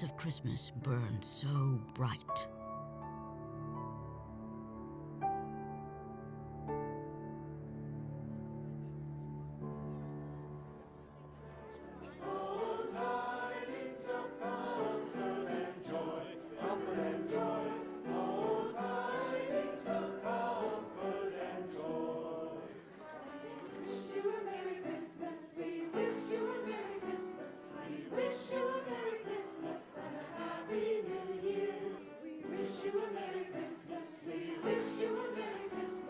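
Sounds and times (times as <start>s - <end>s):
choir singing a carol: 7.4s - 36.0s.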